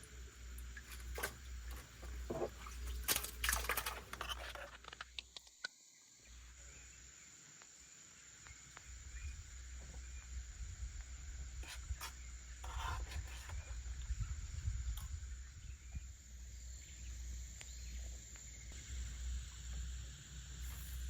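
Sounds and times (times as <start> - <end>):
wind rumble on microphone: 9.1 - 12.1, 12.7 - 16.2.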